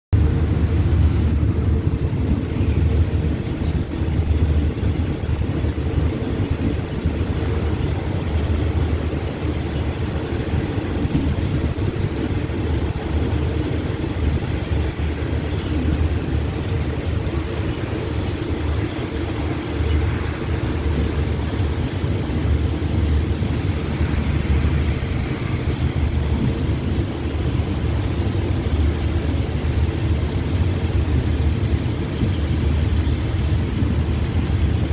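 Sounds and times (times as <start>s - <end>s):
train rumbling along track: 0.1s - 34.9s.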